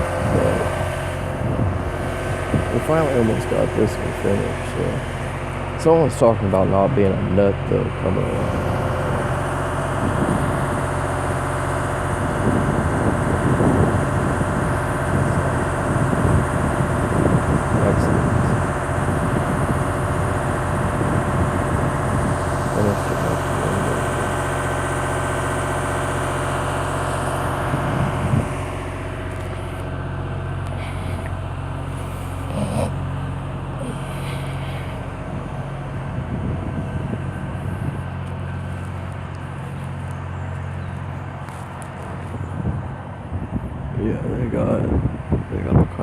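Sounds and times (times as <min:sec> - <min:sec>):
engine idling: 0:00.0 - 0:46.0.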